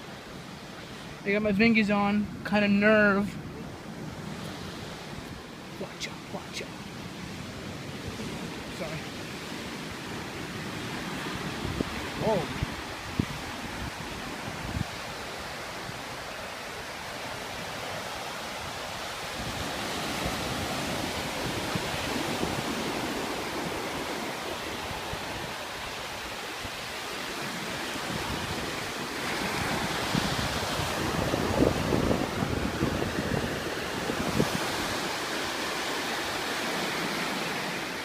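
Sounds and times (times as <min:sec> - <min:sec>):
ocean surf breaking: 0:00.0 - 0:38.0
wind buffeting microphone: 0:02.0 - 0:38.0.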